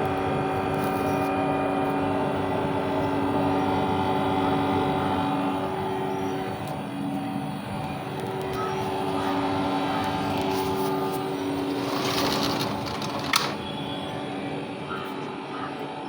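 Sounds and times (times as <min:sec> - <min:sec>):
air conditioner humming: 0:00.0 - 0:16.0.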